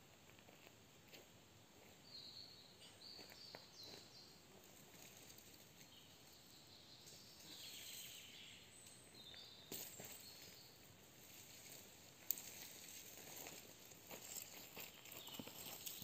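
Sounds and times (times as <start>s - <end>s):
background hiss: 0.0s - 16.0s
faint high bird chirps: 2.1s - 4.3s, 5.8s - 10.9s.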